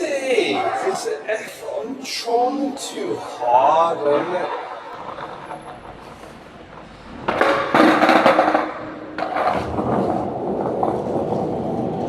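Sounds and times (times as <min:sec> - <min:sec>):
skateboard clacks: 0:04.9 - 0:12.0
skateboard wheels rolling on wet pavement: 0:04.9 - 0:12.0.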